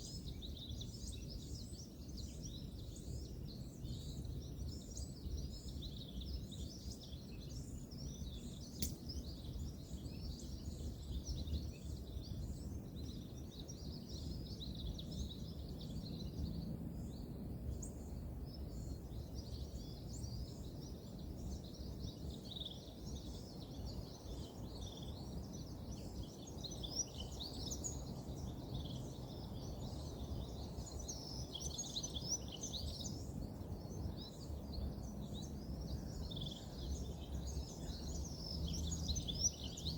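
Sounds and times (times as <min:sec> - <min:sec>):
small birds chirping: 0:00.0 - 0:39.9
sharp click: 0:08.8 - 0:09.1.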